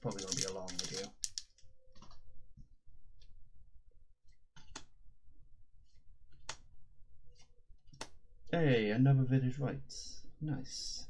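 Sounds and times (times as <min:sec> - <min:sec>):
trading cards flicked through: 0:00.0 - 0:01.6.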